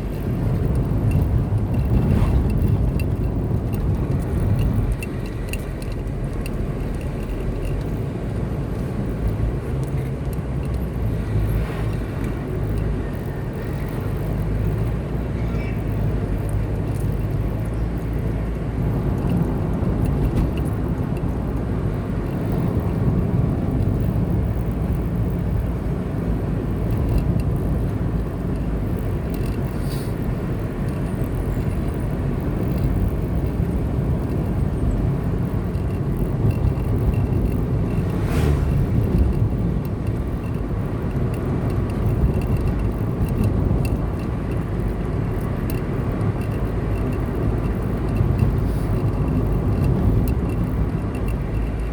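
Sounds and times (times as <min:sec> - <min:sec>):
car driving on road: 0:00.0 - 0:51.9
brief swish: 0:38.1 - 0:38.9.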